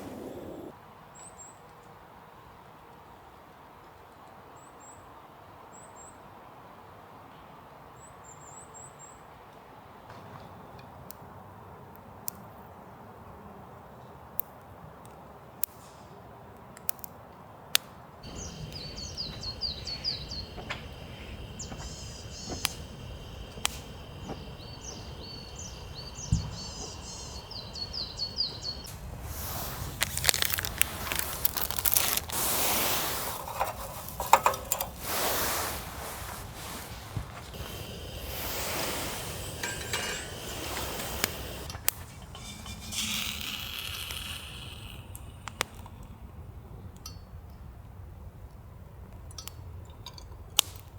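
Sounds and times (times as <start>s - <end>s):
small birds chirping: 0.0s - 0.7s, 18.2s - 46.1s
rustling and handling noises: 28.8s - 44.2s
clinks and clicks: 33.3s - 35.1s, 37.6s - 46.1s.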